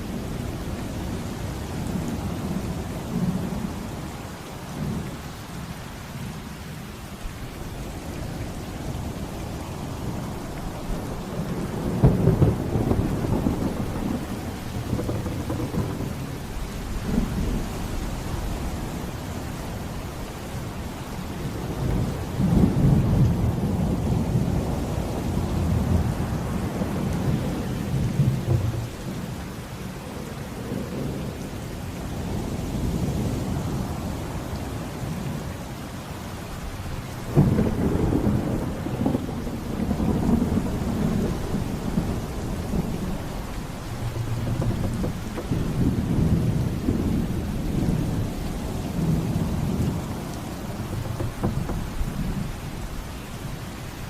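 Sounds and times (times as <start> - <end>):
rain falling: 0.0 - 54.0
rolling thunder: 9.9 - 20.0, 20.6 - 29.8, 36.6 - 53.8.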